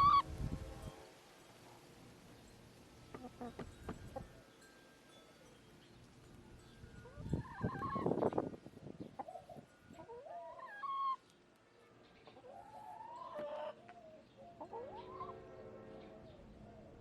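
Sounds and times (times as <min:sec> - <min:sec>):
hens calling: 0:00.0 - 0:00.2, 0:07.4 - 0:08.3, 0:09.2 - 0:11.2, 0:12.2 - 0:16.5
rustling and knocks: 0:03.1 - 0:04.2.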